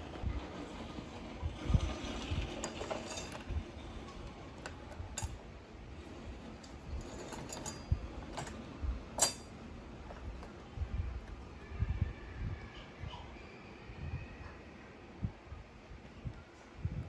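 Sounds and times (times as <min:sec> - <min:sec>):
light metallic clinks and taps: 0:04.6 - 0:05.4, 0:06.6 - 0:10.6.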